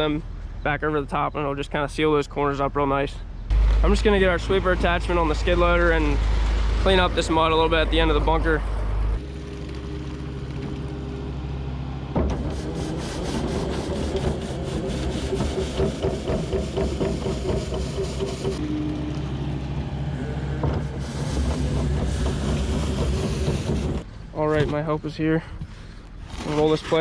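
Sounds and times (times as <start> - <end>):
loader engine running: 3.5 - 24.3.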